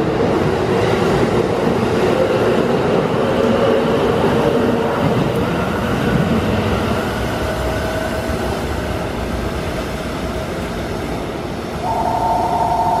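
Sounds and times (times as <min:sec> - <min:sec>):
electric train pulling away: 0:11.8 - 0:13.0
two-note electronic tone: 0:11.8 - 0:13.0.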